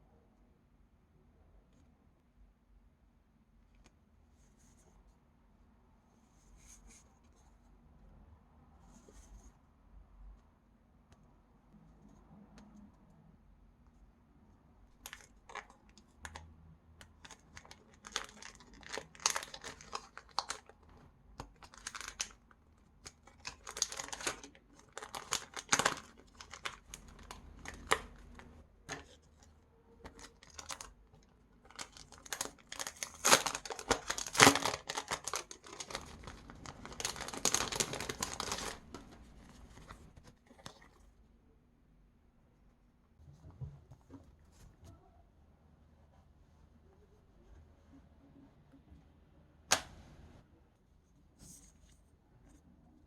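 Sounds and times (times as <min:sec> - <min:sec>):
plastic packaging crinkling: 0:17.2 - 0:29.4, 0:30.0 - 0:31.0, 0:31.6 - 0:41.0.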